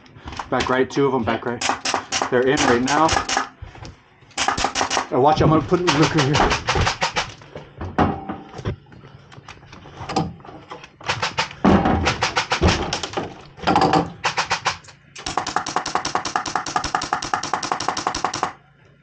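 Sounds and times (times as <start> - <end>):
airsoft guns firing full-auto: 1.6 - 3.6, 4.4 - 5.2, 5.8 - 7.4, 11.0 - 13.2, 14.2 - 18.6.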